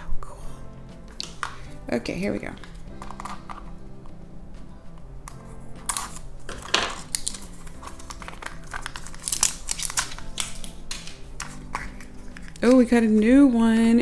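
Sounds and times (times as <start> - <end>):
light background music: 0.0 - 14.0
plastic packaging crinkling and tearing: 5.3 - 13.3.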